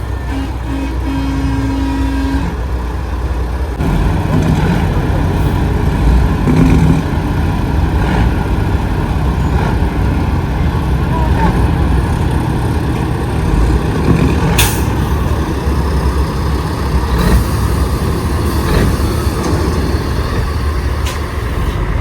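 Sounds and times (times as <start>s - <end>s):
truck horn: 0.0s - 2.9s
truck engines rumbling past: 0.0s - 22.0s.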